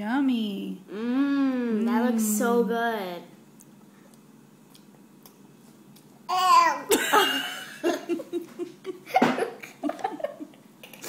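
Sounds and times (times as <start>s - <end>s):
laughter: 7.0s - 10.6s.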